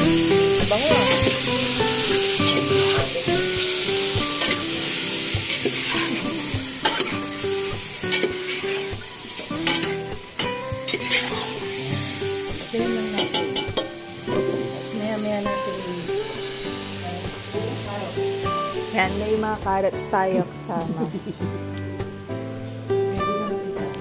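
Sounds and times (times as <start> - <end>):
chicken sizzling in oil: 0.0 - 20.1
background music: 0.0 - 24.0
metal spatula scraping pot: 5.5 - 7.4, 8.1 - 11.7.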